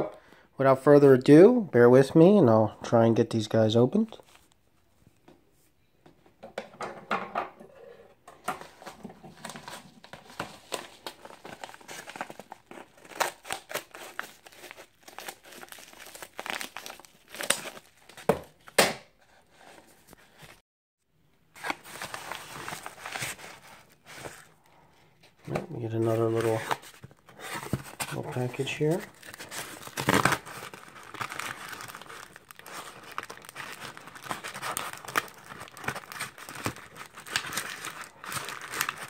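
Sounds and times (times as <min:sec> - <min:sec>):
packaging tearing and crumpling: 0:09.3 - 0:18.3, 0:21.6 - 0:24.5, 0:26.0 - 0:39.0.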